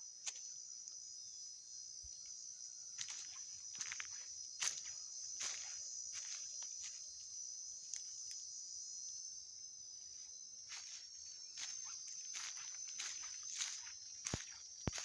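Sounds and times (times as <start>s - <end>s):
high-pitched insect chorus: 0.0s - 15.0s
footsteps on a trail: 2.9s - 7.2s, 10.0s - 15.0s.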